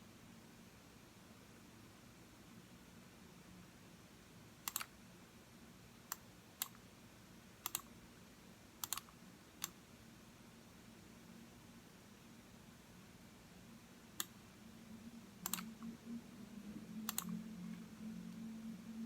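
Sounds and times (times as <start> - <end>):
computer mouse clicking: 4.6 - 4.9, 6.1 - 6.8, 7.6 - 7.9, 8.8 - 9.8, 14.2 - 14.4, 15.4 - 15.9, 17.0 - 17.4.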